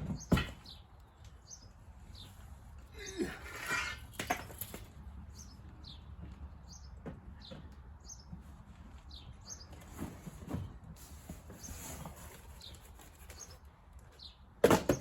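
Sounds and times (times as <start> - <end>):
bird chirping: 0.0 - 3.2, 5.3 - 10.0, 11.5 - 14.5
knocks and rustles: 9.6 - 13.6.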